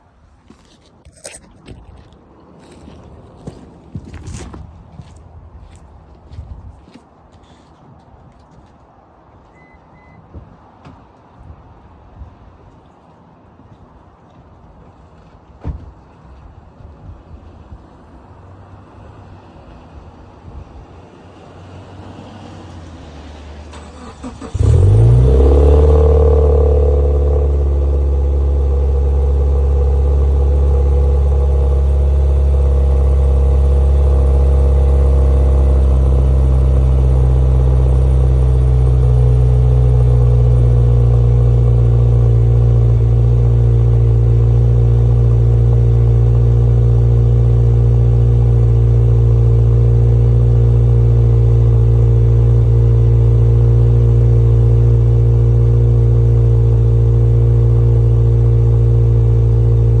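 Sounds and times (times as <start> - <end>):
car engine starting and idling: 22.7 - 60.0.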